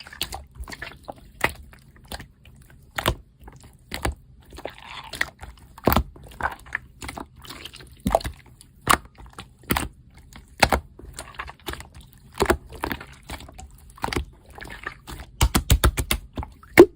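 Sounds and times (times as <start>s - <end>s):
slime squelching pops: 15.4s - 16.9s.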